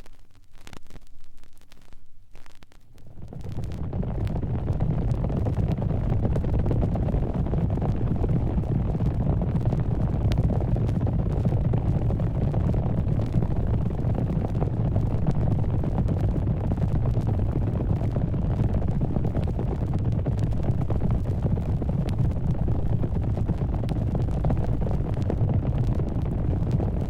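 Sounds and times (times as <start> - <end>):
faint scattered crackles: 0.0 - 27.0
low dense rumble: 1.0 - 27.0.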